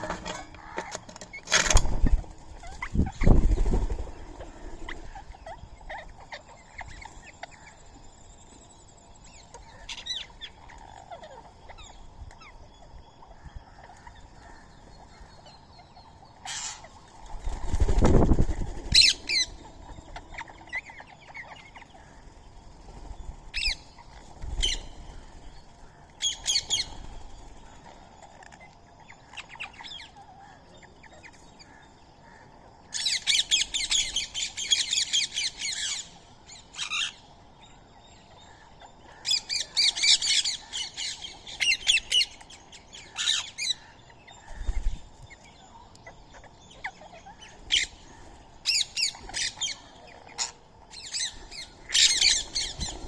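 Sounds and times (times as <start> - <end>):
parakeet wings flapping: 0.0 - 5.1, 17.3 - 19.5
shrill bird calls: 9.4 - 17.0.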